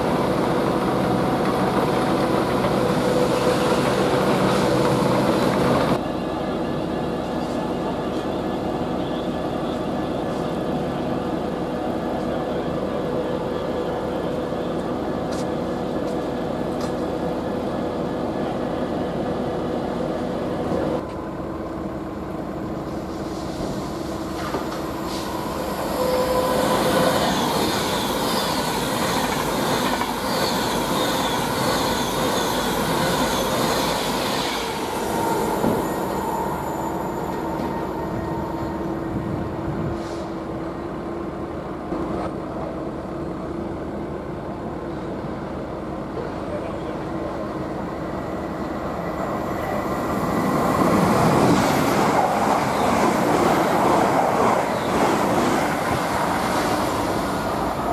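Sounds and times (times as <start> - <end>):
electric train humming: 0.0 - 57.9
freight train rumbling by: 0.0 - 57.9
high-pitched metallic squeals: 25.1 - 29.1, 30.1 - 39.3.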